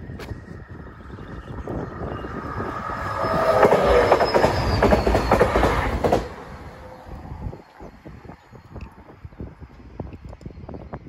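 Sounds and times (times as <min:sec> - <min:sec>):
faint wheel squeal: 0:02.0 - 0:06.0
train wheels clicking over rail joints: 0:02.4 - 0:06.8.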